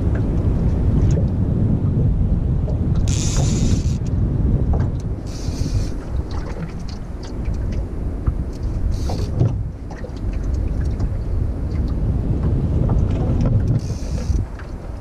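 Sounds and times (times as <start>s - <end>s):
wind buffeting microphone: 0.0s - 15.0s
short hissing bursts: 5.3s - 5.9s.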